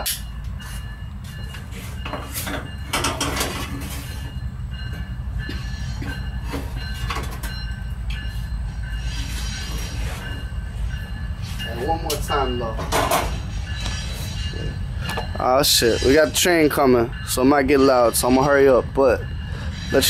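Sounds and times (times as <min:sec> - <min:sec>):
train rumbling past: 0:00.0 - 0:20.0.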